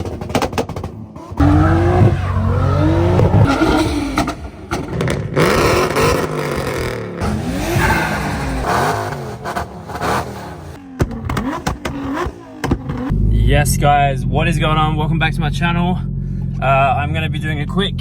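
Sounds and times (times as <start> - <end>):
car engines revving hard: 0.2 - 13.4.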